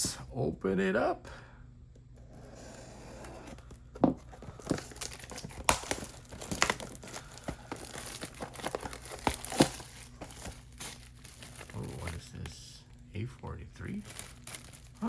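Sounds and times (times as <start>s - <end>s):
plastic wrapping crinkling: 4.2s - 12.6s, 13.8s - 15.0s.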